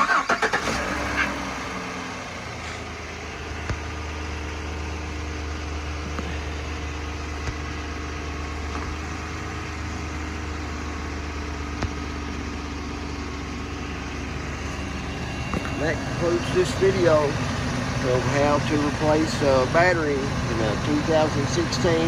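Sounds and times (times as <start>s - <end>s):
pickup truck engine idling: 0.0s - 22.0s.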